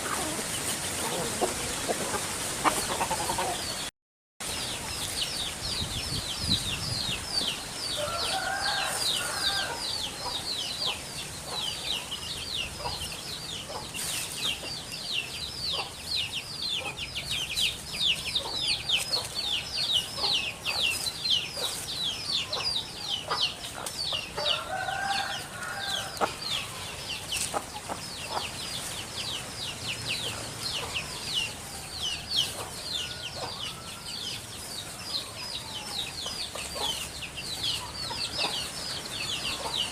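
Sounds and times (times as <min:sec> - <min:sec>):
chickens calling: 0:00.0 - 0:39.9.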